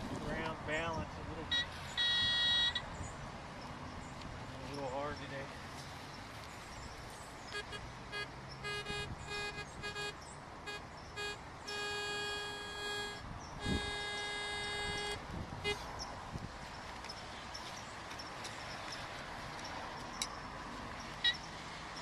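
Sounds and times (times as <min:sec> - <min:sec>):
metal detector beeps: 0:01.5 - 0:02.8, 0:08.6 - 0:15.8, 0:21.2 - 0:21.4.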